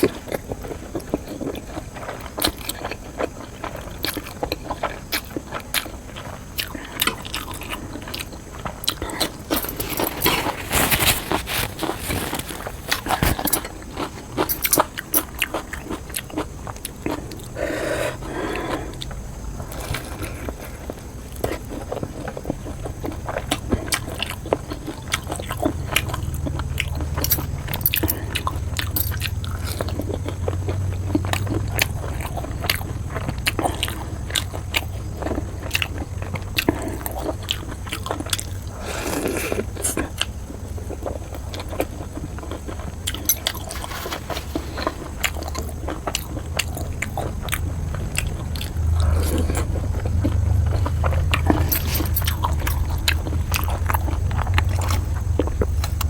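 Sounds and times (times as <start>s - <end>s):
person chewing noodles: 0.0s - 56.0s
low rumble: 44.2s - 56.0s.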